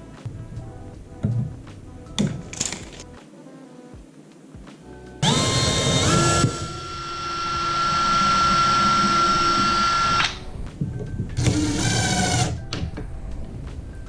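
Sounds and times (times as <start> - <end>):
power tool motor whining: 5.2 - 10.4, 11.4 - 12.6.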